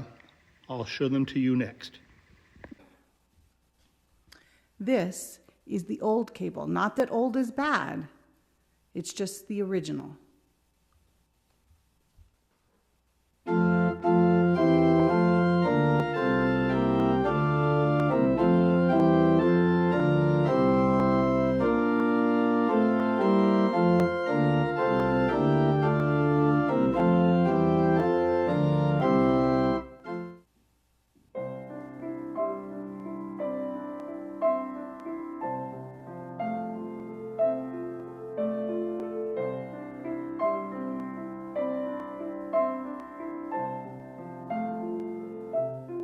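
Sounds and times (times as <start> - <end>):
organ playing held chords: 13.5 - 30.4
piano playing: 13.5 - 30.5, 31.4 - 46.0.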